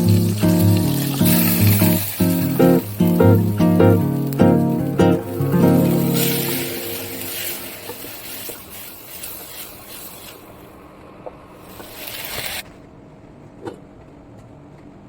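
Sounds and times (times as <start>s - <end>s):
rushing noise: 0.0s - 10.4s.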